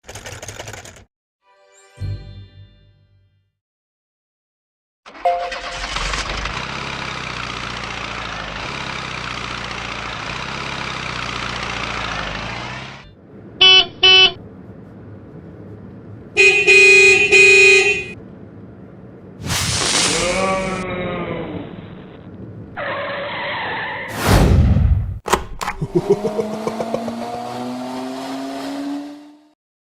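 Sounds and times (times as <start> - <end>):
cartoon truck engine running: 5.1 - 14.5, 25.4 - 29.5
horn toots: 13.6 - 14.4, 16.4 - 18.2
long horn honk: 13.6 - 14.4, 16.4 - 18.2.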